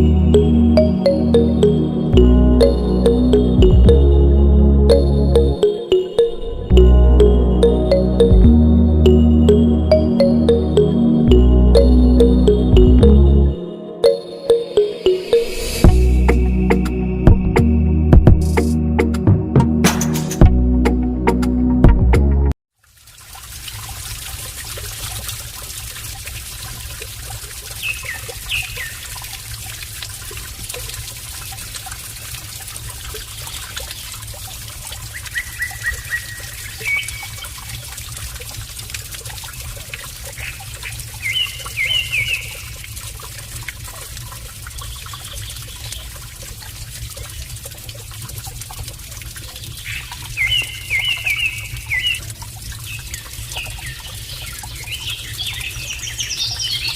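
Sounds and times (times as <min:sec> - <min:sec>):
running water trickling: 0:00.0 - 0:04.1, 0:22.7 - 0:56.9.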